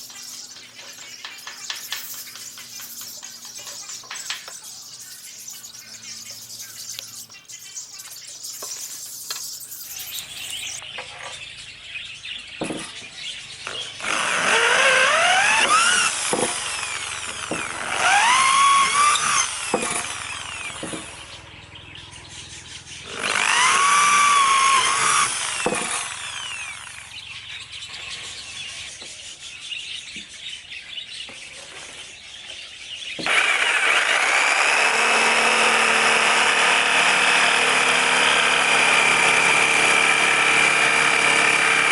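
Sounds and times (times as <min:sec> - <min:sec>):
electric jigsaw motor whining: 0:13.6 - 0:21.3, 0:23.0 - 0:27.3, 0:33.2 - 0:41.9.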